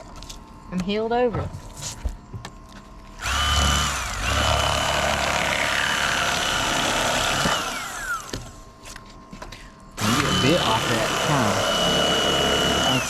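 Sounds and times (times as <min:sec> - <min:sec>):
electric fillet knife motor whine: 0:03.2 - 0:08.5, 0:10.0 - 0:13.0.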